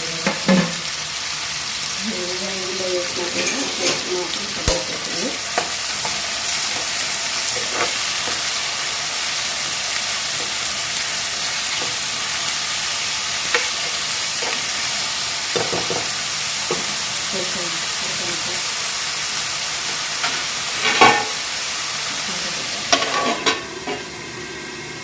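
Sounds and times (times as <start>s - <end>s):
onions sizzling in hot oil: 0.0s - 25.0s
stirring scrapes and taps: 7.6s - 8.5s.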